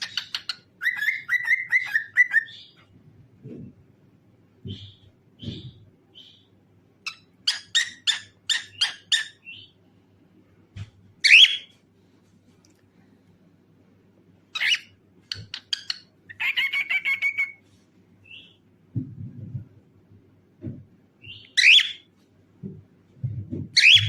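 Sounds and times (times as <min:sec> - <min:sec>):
cockatiel chirping and calling: 0:00.0 - 0:02.8, 0:07.0 - 0:09.7, 0:11.2 - 0:11.7, 0:14.6 - 0:17.6, 0:21.2 - 0:22.1, 0:23.8 - 0:24.0.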